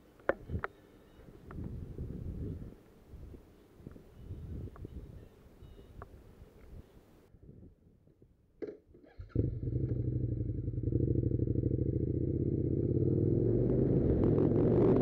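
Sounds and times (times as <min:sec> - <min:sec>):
motorcycle engine running: 0:09.3 - 0:15.0.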